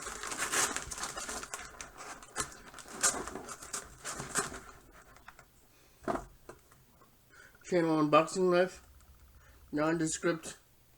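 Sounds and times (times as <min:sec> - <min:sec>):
packaging rustling and tearing: 0:00.0 - 0:05.4.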